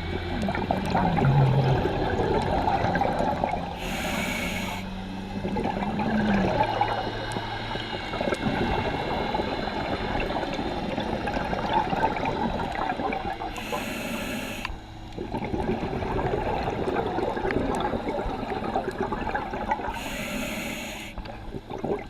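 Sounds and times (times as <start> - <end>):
bubbling exhaust underwater: 0.0 - 22.0
regulator hissing inhale: 3.8 - 5.0, 13.5 - 14.8, 19.9 - 21.2.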